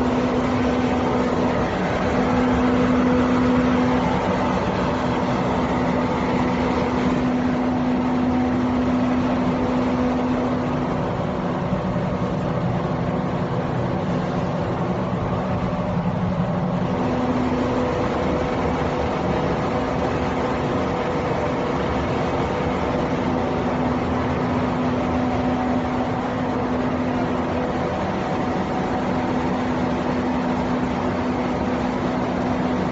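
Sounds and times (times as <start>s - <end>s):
film extruder machine humming: 0.0s - 32.9s.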